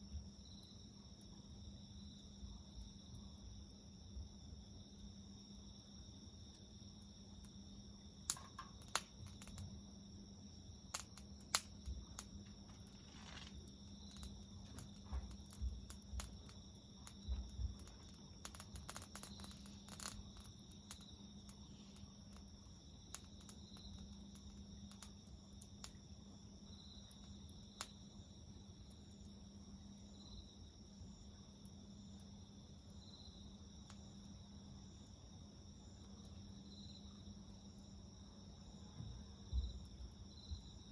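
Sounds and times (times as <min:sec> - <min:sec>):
insects trilling: 0:00.1 - 0:40.9
wood fire crackling and popping: 0:01.2 - 0:29.6.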